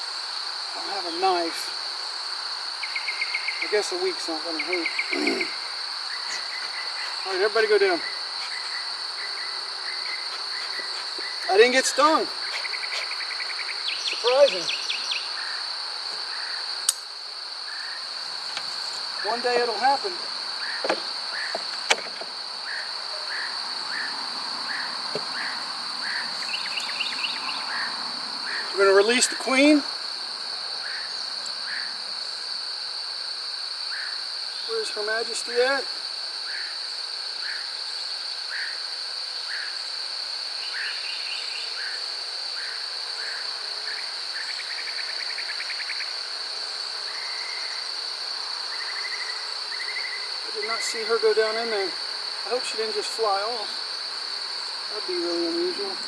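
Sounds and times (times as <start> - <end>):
insect high trill: 0.0 - 56.0
insect short chirp: 0.0 - 56.0
bird chirping: 12.4 - 15.6, 24.8 - 28.8
sharp click: 16.8 - 17.1.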